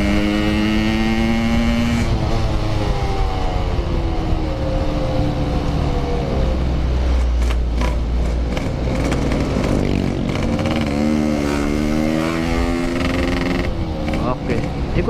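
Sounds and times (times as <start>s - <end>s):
road noise: 0.0s - 15.0s
two-stroke motorcycle engine: 7.4s - 12.0s, 12.6s - 15.0s.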